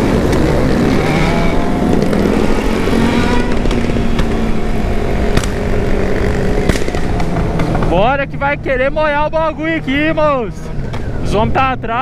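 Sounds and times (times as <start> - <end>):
motorcycle engines running: 0.0 - 12.0
sharp engine pops: 5.3 - 5.6, 6.6 - 7.9.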